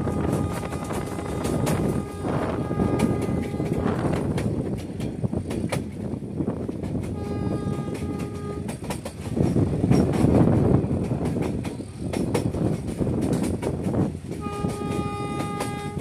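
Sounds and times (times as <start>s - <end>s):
locomotive horn: 0.0s - 4.4s, 7.1s - 8.8s, 14.3s - 16.0s
train rumble: 0.0s - 16.0s
train wheels clicking on rails: 0.0s - 16.0s.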